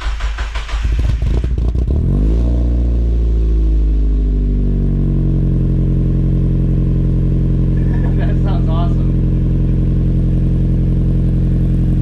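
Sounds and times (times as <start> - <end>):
car engine starting and idling: 0.0 - 12.0.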